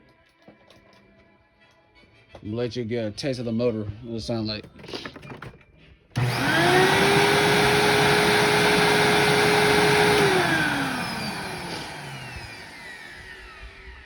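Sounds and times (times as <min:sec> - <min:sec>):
rushing airflow: 0:06.2 - 0:13.8
vacuum cleaner motor whining: 0:06.2 - 0:14.0.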